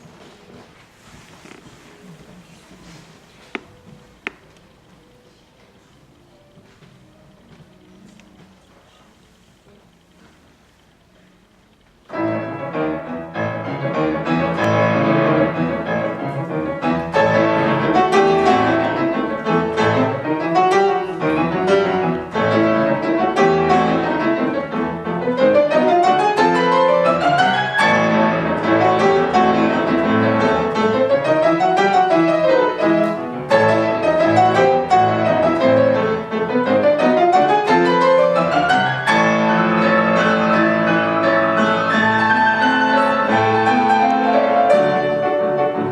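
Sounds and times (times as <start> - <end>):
solo piano piece: 11.3 - 45.9.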